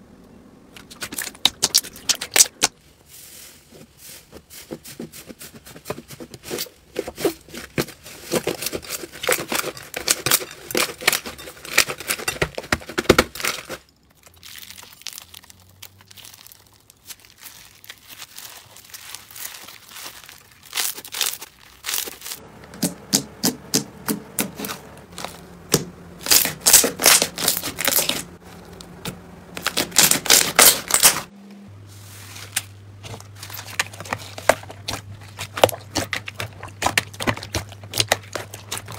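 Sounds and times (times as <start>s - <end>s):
slime crackling and popping: 0.9s - 2.7s, 13.0s - 23.8s, 24.4s - 28.4s, 29.6s - 31.3s, 32.5s - 38.9s.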